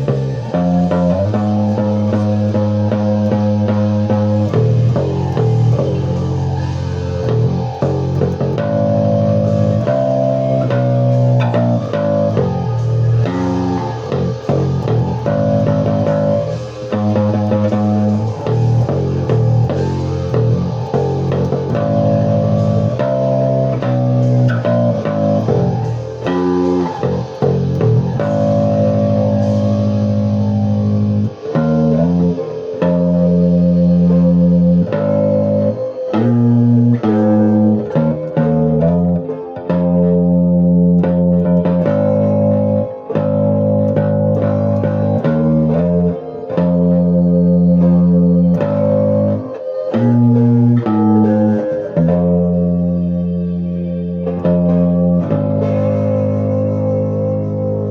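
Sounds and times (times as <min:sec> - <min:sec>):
bass guitar notes: 0:00.0 - 0:57.9
guitar chords: 0:00.0 - 0:57.9.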